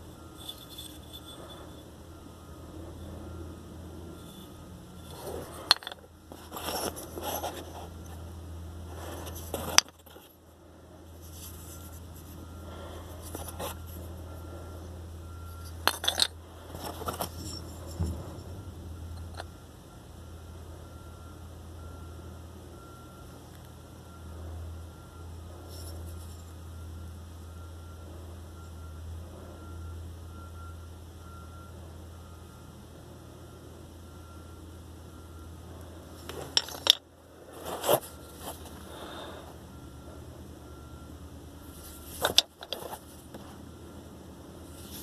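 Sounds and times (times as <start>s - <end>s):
steady low hum: 0.0s - 45.0s
stones clicking and scraping: 0.2s - 1.8s, 4.2s - 8.3s, 8.9s - 10.4s, 11.2s - 14.2s, 15.5s - 18.5s, 36.2s - 39.1s, 41.6s - 43.5s, 44.7s - 45.0s.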